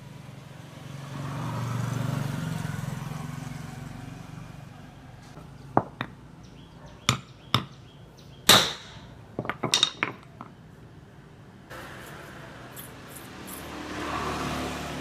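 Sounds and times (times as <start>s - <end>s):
metal tools knocking and clicking: 5.8s - 6.2s, 7.1s - 7.8s, 8.5s - 10.6s.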